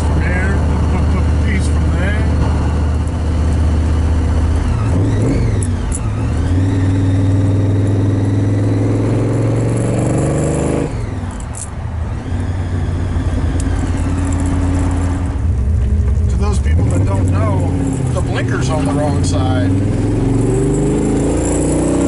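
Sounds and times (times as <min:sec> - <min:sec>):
supercharged car engine accelerating: 0:00.0 - 0:11.2, 0:12.3 - 0:22.0
supercharger whining: 0:00.0 - 0:22.0.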